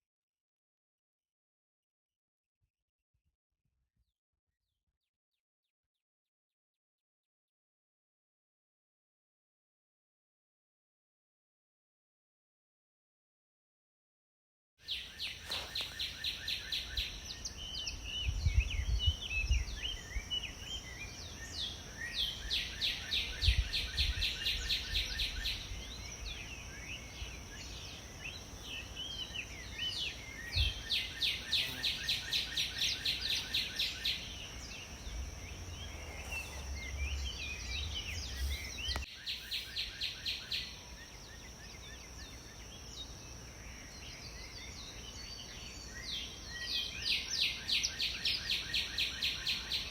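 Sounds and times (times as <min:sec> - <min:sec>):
birds singing: 0:14.8 - 0:49.9
steady high-pitched whine: 0:15.1 - 0:47.4.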